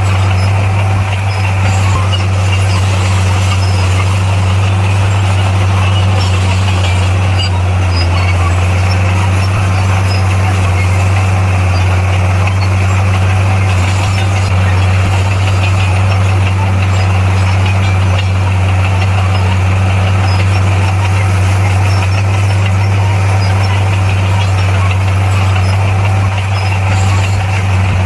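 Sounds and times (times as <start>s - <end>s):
diesel engine droning: 0.0s - 28.0s.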